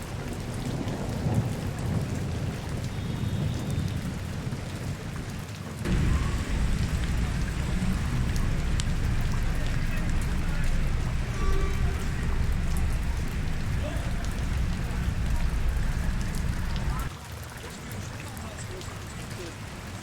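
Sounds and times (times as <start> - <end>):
rain falling on street: 0.0 - 20.0
low rumble: 5.9 - 17.1.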